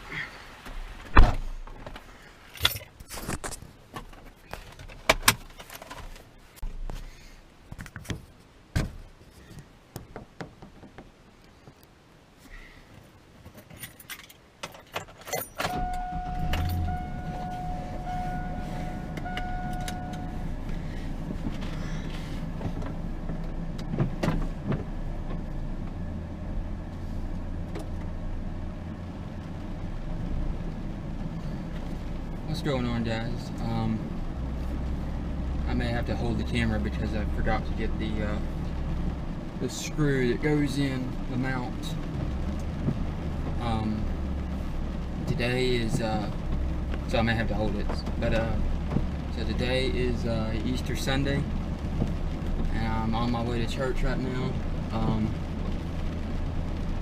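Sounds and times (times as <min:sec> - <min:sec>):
car engine running: 0:15.6 - 0:57.0
electronic warning tone: 0:15.7 - 0:20.5.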